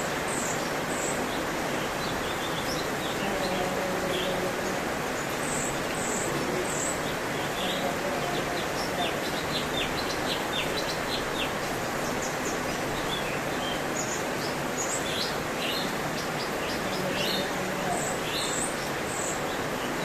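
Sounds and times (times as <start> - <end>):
steady background hiss: 0.0 - 20.0
bird chirping: 5.2 - 20.0.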